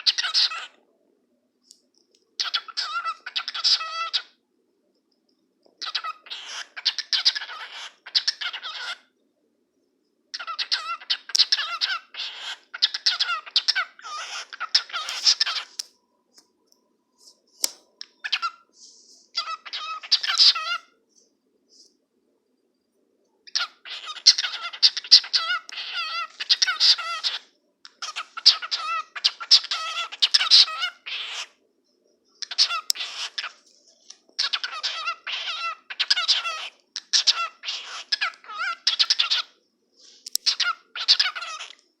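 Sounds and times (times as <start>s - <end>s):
cockatiel chattering: 0.0s - 0.7s, 2.4s - 4.3s, 5.8s - 9.0s, 10.4s - 15.8s, 18.0s - 18.7s, 19.3s - 20.9s, 23.5s - 31.6s, 32.4s - 33.6s, 34.4s - 39.6s, 40.4s - 41.8s.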